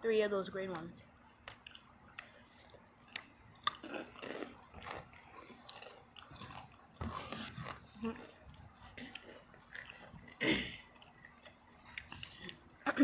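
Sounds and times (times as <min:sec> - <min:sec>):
chips being crunched and chewed: 0:03.1 - 0:10.1, 0:10.9 - 0:12.8.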